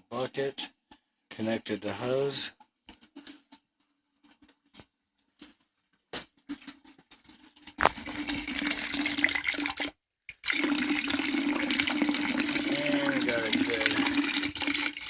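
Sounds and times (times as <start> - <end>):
water pouring into bucket: 6.5 - 15.0.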